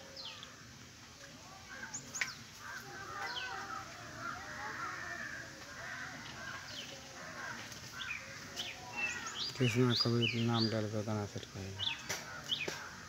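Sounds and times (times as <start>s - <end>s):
wavering bird chatter: 1.5s - 13.0s
high falling bird chirps: 1.7s - 5.4s, 7.9s - 10.9s.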